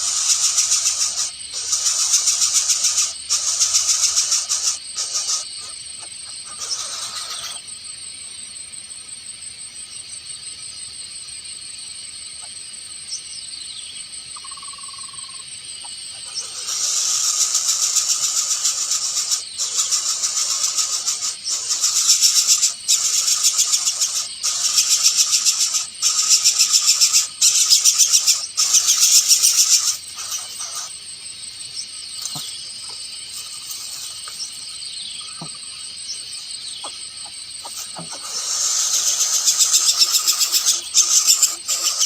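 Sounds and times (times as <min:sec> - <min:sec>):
rasping trilling animal calls: 0:00.0 - 0:07.6, 0:16.2 - 0:31.0, 0:35.2 - 0:42.0.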